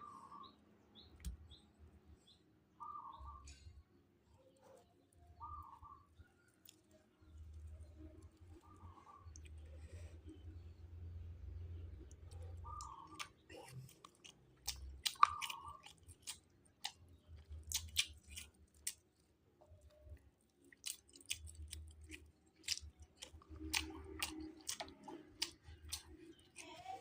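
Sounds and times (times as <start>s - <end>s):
person chewing: 6.4s - 10.4s, 11.8s - 27.0s
mouth clicks and smacks: 12.0s - 17.0s, 17.6s - 19.0s.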